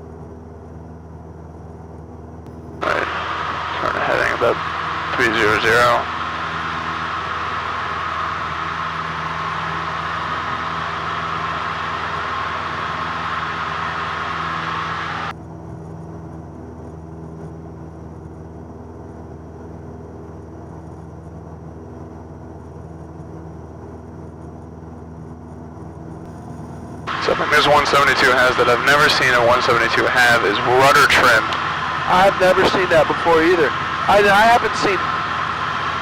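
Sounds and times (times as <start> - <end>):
light aircraft engine drone: 0.0 - 36.0
loud rushing hiss: 2.8 - 15.3, 27.1 - 36.0.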